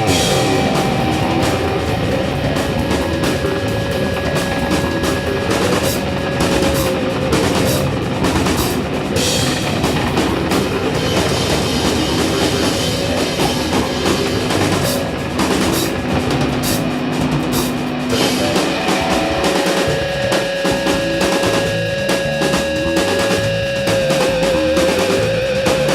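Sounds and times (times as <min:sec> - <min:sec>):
instrumental rock music: 0:00.0 - 0:25.9.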